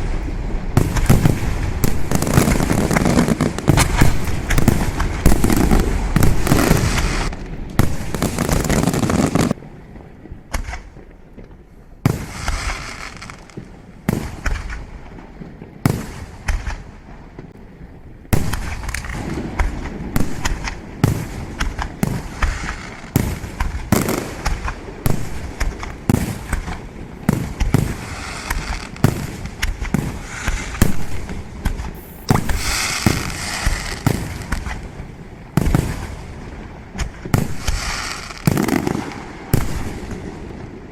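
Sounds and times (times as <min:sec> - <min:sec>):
fireworks bangs: 0:00.0 - 0:09.6, 0:18.4 - 0:40.5
fireworks crackling: 0:00.0 - 0:09.6, 0:12.1 - 0:15.1, 0:18.4 - 0:40.3.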